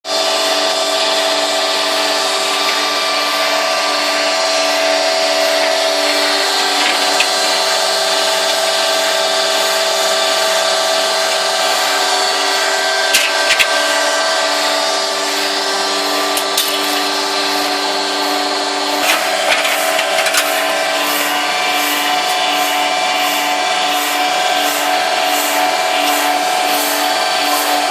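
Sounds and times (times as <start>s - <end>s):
concrete pump whine: 0.1s - 27.9s.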